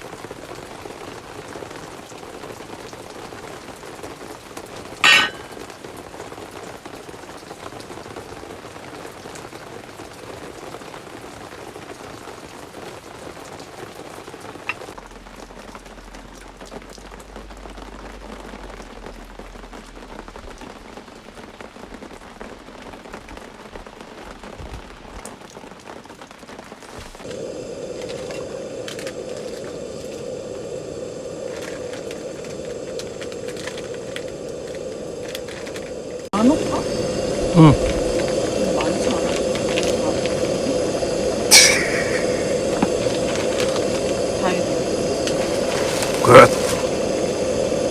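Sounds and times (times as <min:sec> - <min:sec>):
rain pattering on a surface: 0:00.0 - 0:41.5, 0:42.9 - 0:47.9
sharp crack: 0:41.5 - 0:44.6.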